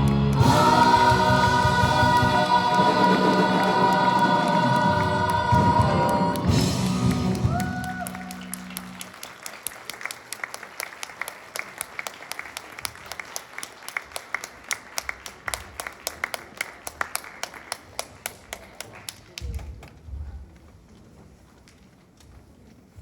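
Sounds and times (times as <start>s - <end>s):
choir singing held chord: 0.2s - 7.2s
hand claps applause: 2.2s - 19.9s.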